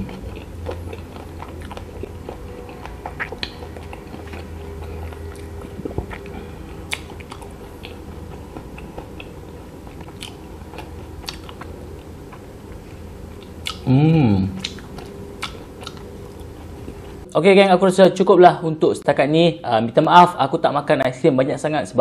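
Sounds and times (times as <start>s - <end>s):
person chewing: 0.0s - 17.3s
low steady hum: 0.0s - 22.0s.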